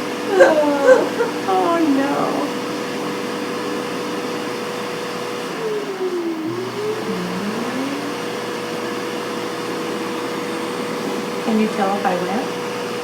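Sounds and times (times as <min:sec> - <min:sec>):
bidet motor whir: 0:05.6 - 0:12.8.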